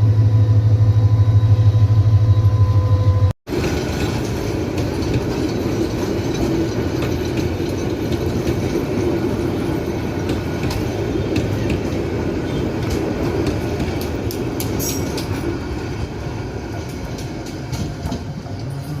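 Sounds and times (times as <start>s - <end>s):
freight train wagons rumbling: 1.8s - 19.0s
wheels clicking over rail joints: 3.5s - 19.0s.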